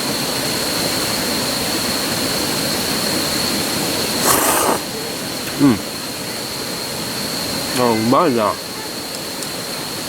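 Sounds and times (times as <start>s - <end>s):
rushing outdoor noise: 0.0s - 10.0s
short burst of hiss: 4.1s - 5.0s
constant high-pitched tone: 4.9s - 10.0s.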